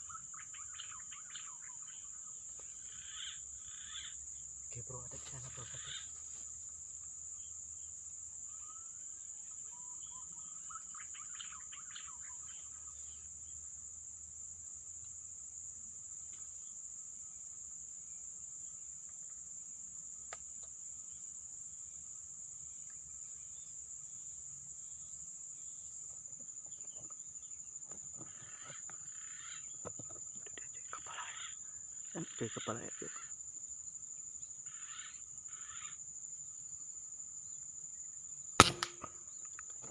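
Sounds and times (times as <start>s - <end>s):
bird chirps: 0.0s - 4.2s, 9.6s - 13.2s
crickets droning: 0.0s - 39.9s
sharp click: 38.6s - 39.6s.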